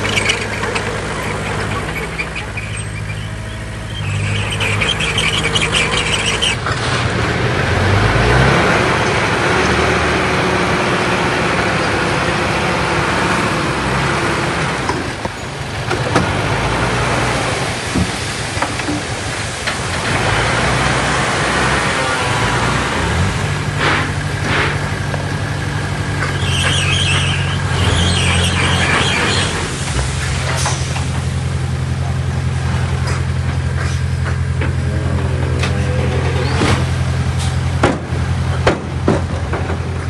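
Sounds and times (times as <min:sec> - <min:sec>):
din of working noise: 0:00.0 - 0:40.0
heavy machinery diesel engine: 0:00.0 - 0:40.0.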